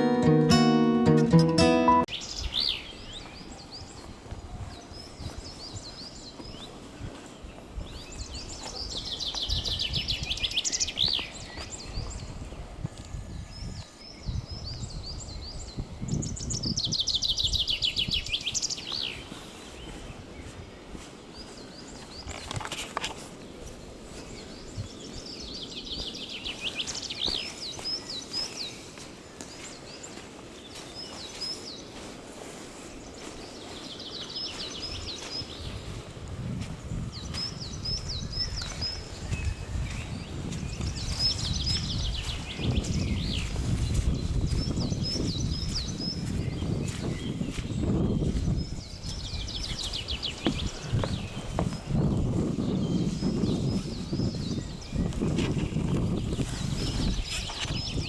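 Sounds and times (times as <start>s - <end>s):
bird trilling song: 37.2s - 58.0s.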